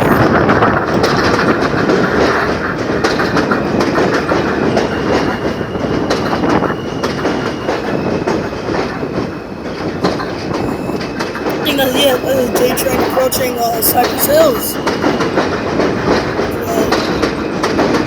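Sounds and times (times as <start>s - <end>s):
train wheels clattering over rail joints: 0.3s - 11.6s.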